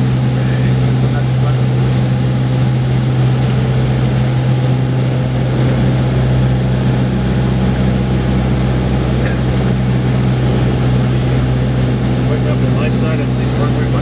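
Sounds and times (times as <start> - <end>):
light plane engine and propeller drone: 0.0 - 14.0.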